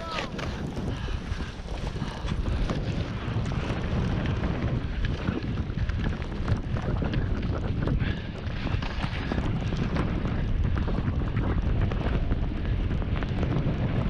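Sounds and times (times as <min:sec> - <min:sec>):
skis scraping over snow: 0:00.0 - 0:12.8
wind buffeting microphone: 0:00.0 - 0:14.0.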